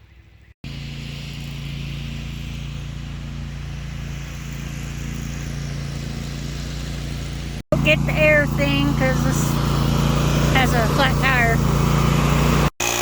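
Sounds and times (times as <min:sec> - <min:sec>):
riding lawn mower engine running: 0:00.1 - 0:13.0.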